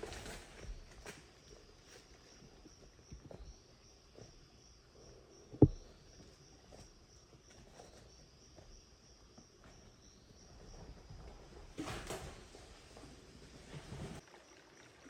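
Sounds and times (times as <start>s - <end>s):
forest background: 0.0s - 15.0s
insects chirping: 0.0s - 15.0s
dull thump: 5.6s - 6.0s
soft knocks: 5.6s - 6.0s.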